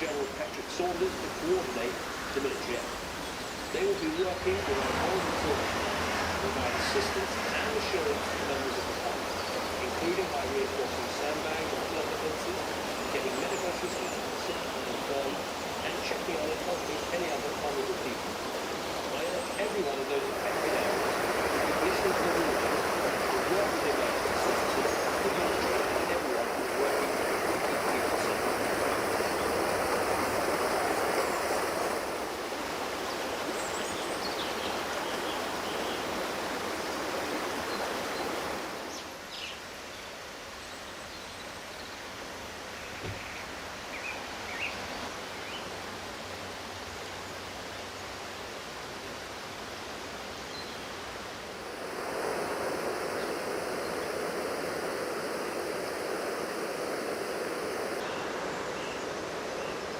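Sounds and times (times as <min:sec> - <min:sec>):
floodwater rushing: 0:00.0 - 0:39.3, 0:50.9 - 0:59.9.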